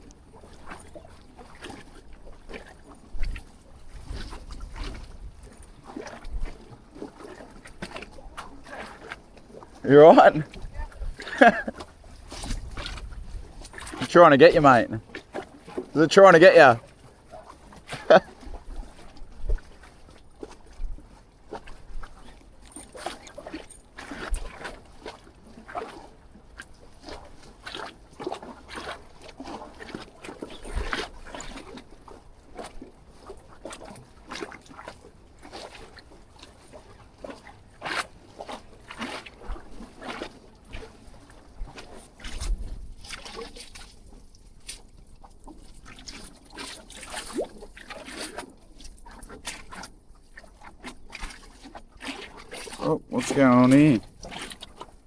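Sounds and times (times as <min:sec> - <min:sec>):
small splashes and knocks: 0:00.0 - 0:14.2, 0:14.9 - 0:16.0, 0:16.8 - 0:55.0
water sloshing against pilings: 0:00.0 - 0:55.0
wind buffeting microphone: 0:10.2 - 0:14.6.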